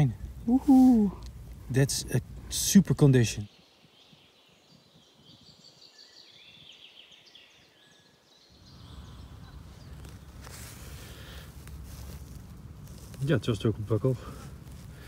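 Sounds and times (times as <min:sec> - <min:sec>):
faint birdsong: 0:00.0 - 0:15.0
short rustle: 0:09.4 - 0:15.0.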